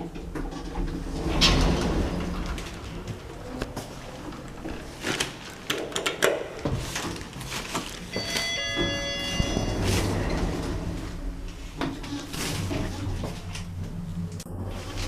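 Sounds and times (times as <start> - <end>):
lift humming: 8.0 - 15.0
ringing multi-pitch chime: 8.1 - 10.0.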